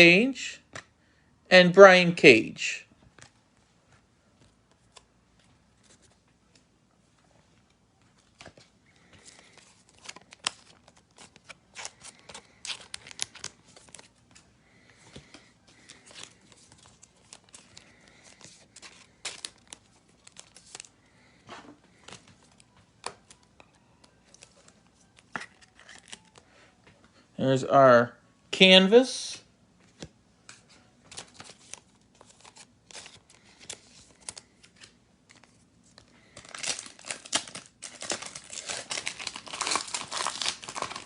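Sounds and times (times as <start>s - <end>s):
foil wrapper crinkling and tearing: 9.1s - 14.1s, 15.8s - 20.9s, 25.3s - 26.4s, 36.2s - 41.0s.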